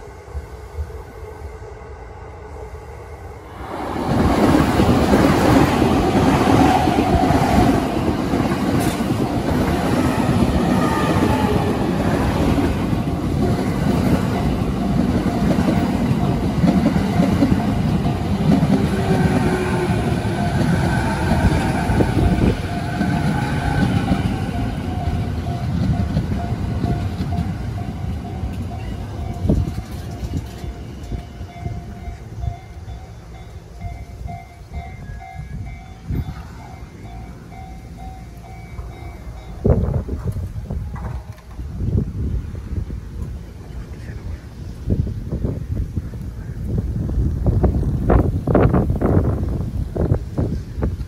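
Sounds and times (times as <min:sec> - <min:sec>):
steady high tone: 0:00.0 - 0:40.1
train wheels rumbling and clacking: 0:03.5 - 0:51.0.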